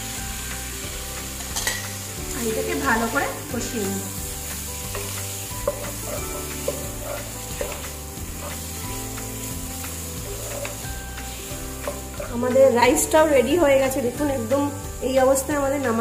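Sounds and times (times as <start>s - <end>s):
chicken sizzling in masala: 0.0s - 16.0s
spatula scraping pan: 4.2s - 13.0s.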